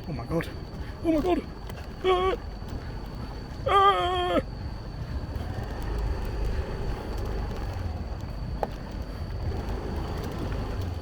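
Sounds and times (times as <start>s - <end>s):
wind rumbling on microphone: 0.0s - 11.0s
motorbike engine running: 4.7s - 11.0s.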